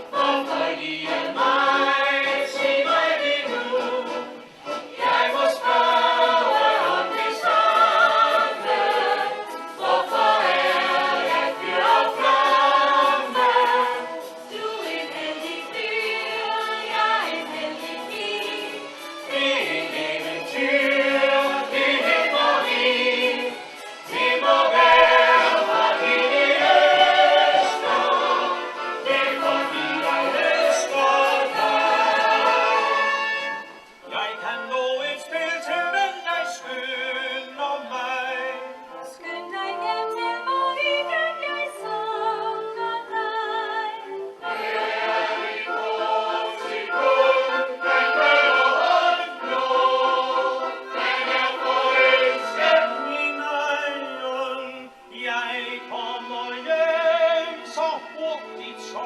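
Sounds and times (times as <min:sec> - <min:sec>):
choir singing show tune: 0:00.0 - 0:59.0.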